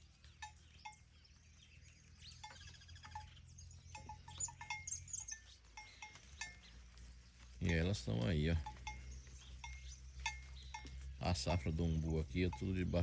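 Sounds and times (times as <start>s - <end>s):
livestock bells clinking: 0.0s - 13.0s
small birds chirping: 0.0s - 13.0s.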